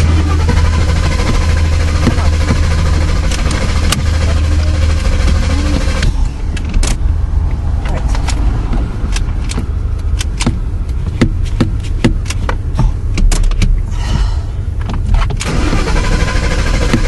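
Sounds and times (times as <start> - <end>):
engine cranking and starting: 0.0 - 6.9, 15.2 - 17.0.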